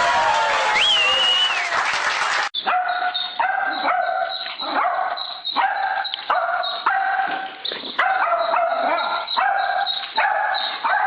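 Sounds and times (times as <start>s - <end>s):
dog barking high and ringing: 2.6s - 11.0s.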